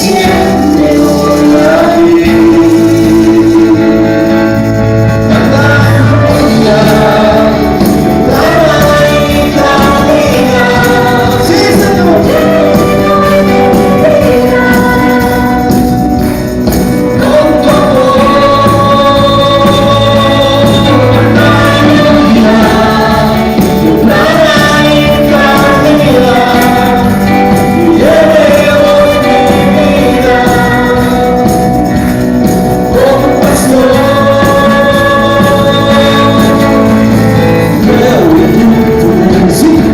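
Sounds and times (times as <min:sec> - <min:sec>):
group singing slow melody: 0:00.0 - 0:39.9
live band accompaniment: 0:00.0 - 0:39.9
tambourine: 0:00.0 - 0:39.9.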